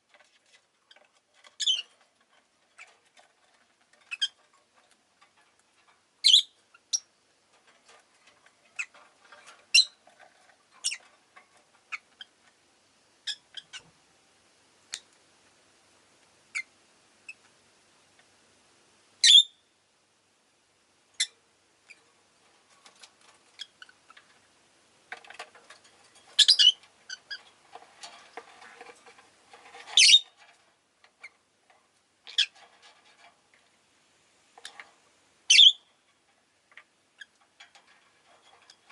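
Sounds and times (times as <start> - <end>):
lovebirds chirping and squeaking: 1.0 - 3.2, 4.0 - 4.5, 6.2 - 7.1, 8.7 - 10.0, 10.8 - 11.2, 11.8 - 12.4, 13.2 - 13.9, 23.5 - 24.1, 26.2 - 27.5, 29.8 - 30.4, 32.3 - 32.6, 35.5 - 35.9.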